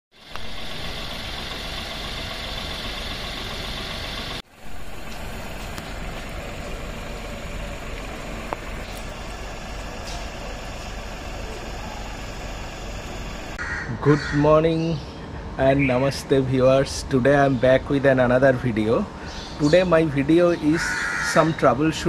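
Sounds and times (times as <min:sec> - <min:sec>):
car engine idling: 0:00.1 - 0:13.6.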